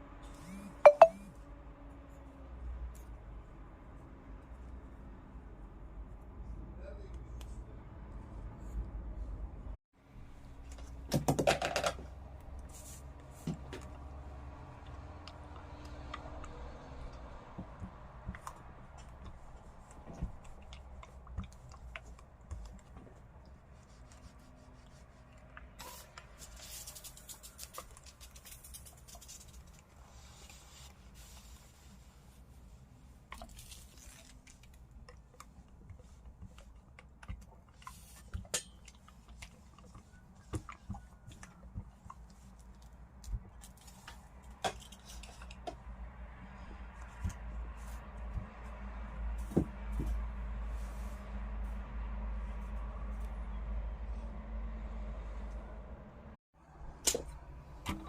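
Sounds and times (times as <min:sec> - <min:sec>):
small clicks and rustles: 0:10.4 - 0:45.9.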